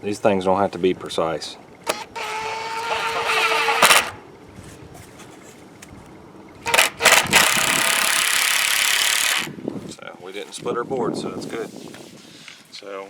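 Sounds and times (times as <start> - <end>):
power drill whining: 1.9 - 4.2, 6.6 - 9.5.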